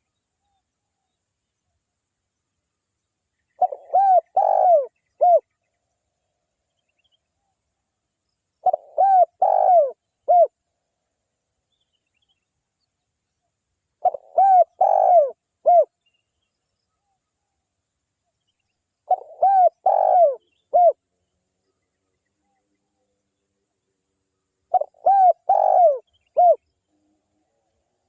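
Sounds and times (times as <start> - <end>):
dove cooing: 3.6 - 5.5, 8.6 - 10.5, 14.0 - 15.9, 19.1 - 21.0, 24.7 - 26.6.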